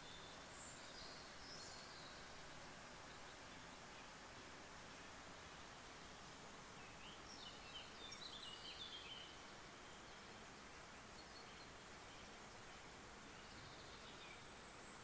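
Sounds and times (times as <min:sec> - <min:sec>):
faint hiss: 0:00.0 - 0:15.0.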